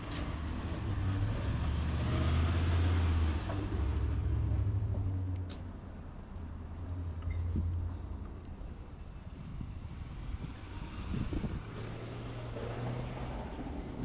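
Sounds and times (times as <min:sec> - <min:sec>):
vehicle passing by: 0:00.0 - 0:04.8, 0:10.0 - 0:14.0.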